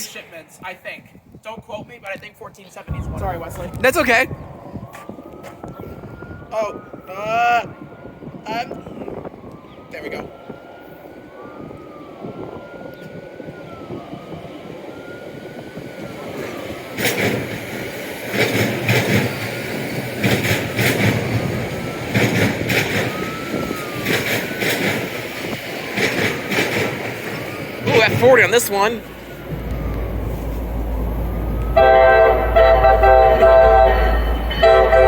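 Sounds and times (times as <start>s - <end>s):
train rumble: 2.9s - 5.5s, 14.8s - 35.0s
train wheels clacking over rail joints: 16.4s - 28.2s.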